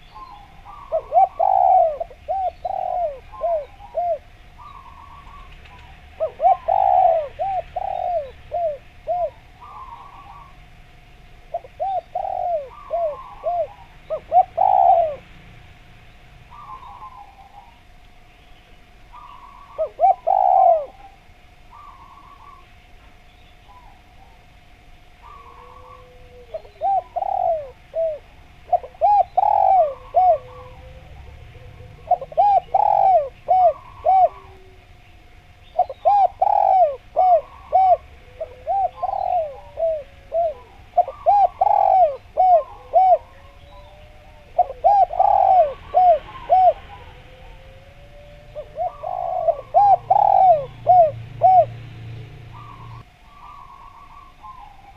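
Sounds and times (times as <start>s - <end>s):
small birds chirping: 0.0s - 10.7s, 11.5s - 24.5s, 25.2s - 54.9s
doves cooing: 0.0s - 15.6s, 16.4s - 18.3s, 19.0s - 23.0s, 23.6s - 54.9s.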